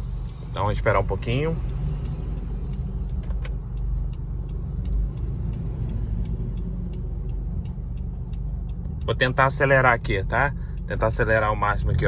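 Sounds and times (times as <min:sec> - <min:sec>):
car engine and exhaust drone: 0:00.0 - 0:12.0
quick regular ticking: 0:00.0 - 0:12.0.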